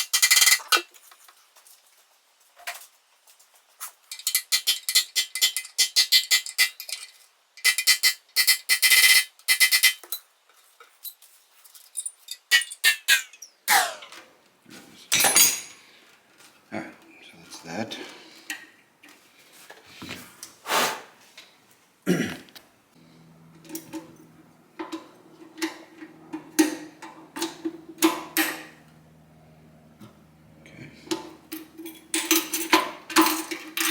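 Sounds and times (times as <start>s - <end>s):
metal tools clinking: 4.1s - 14.2s, 15.1s - 15.9s, 31.1s - 33.9s.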